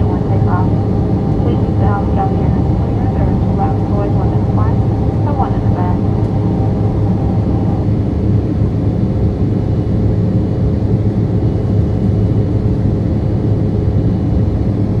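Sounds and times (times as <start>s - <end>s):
faint steady hum: 0.0s - 8.1s
jet airliner roar in flight: 0.0s - 15.0s.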